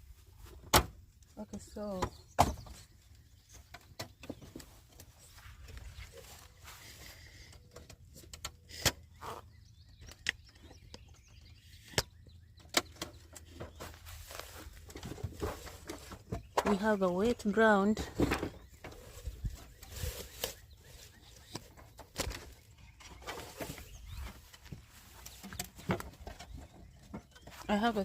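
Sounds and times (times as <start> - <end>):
wooden frames knocking and clicking: 3.5 - 5.9, 11.9 - 20.6, 21.3 - 28.0.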